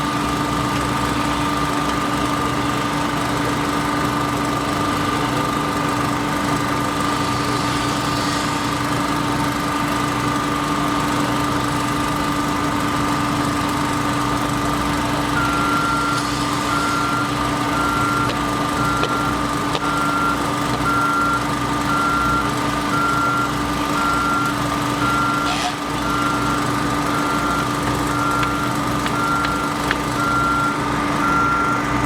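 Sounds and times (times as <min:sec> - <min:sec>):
diesel engine running: 0:00.0 - 0:32.0
backup alarm beeping: 0:15.4 - 0:31.9.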